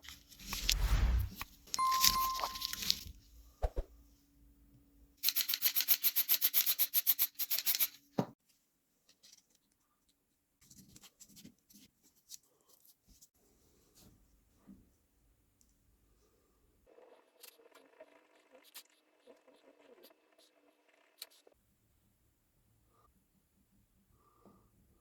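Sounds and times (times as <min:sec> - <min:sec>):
faint scrapes and light clicks: 0:00.0 - 0:03.1.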